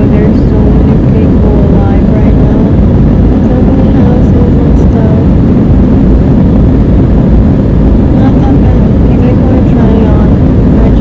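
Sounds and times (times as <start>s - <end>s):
jet engines rumbling: 0.0s - 11.0s
rushing air: 0.0s - 11.0s.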